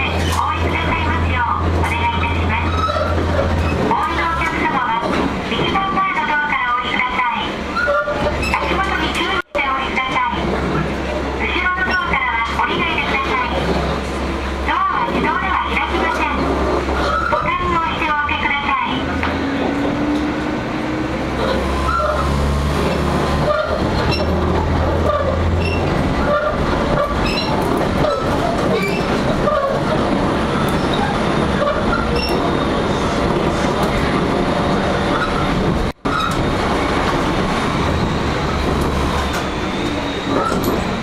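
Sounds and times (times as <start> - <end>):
high wheel squeals: 2.6 - 3.8, 7.7 - 8.7, 17.0 - 17.5, 21.7 - 22.4, 23.4 - 24.4, 25.0 - 29.8, 30.5 - 33.0, 36.1 - 36.4, 39.1 - 41.0
wheels clicking over rail joints: 21.4 - 32.6, 35.1 - 41.0.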